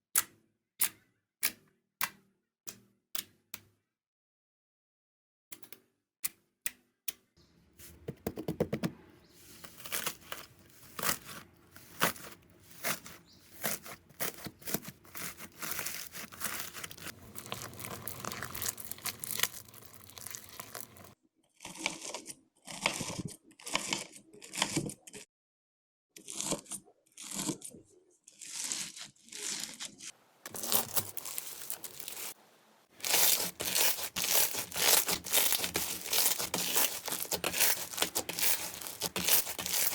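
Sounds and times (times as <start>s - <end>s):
slime crackling and popping: 11.0s - 21.2s, 30.5s - 32.4s, 33.0s - 39.9s.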